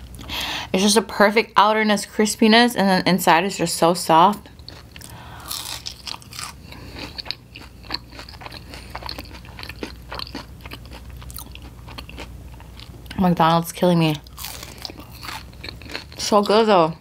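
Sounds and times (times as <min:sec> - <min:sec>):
crunchy chewing: 0:04.4 - 0:13.2, 0:14.2 - 0:16.6.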